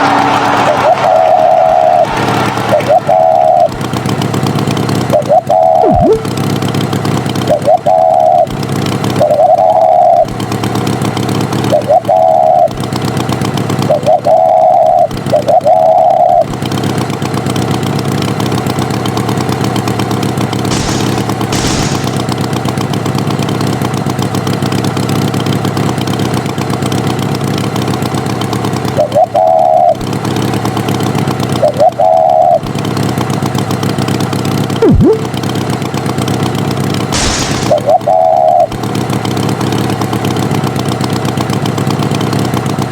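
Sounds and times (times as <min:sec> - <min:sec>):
cartoon tractor engine running: 0:00.0 - 0:42.9
quick falling sweep: 0:05.8 - 0:06.3, 0:20.7 - 0:22.4, 0:34.8 - 0:35.3, 0:37.2 - 0:38.0
short beeps: 0:05.8 - 0:06.3, 0:34.8 - 0:35.3.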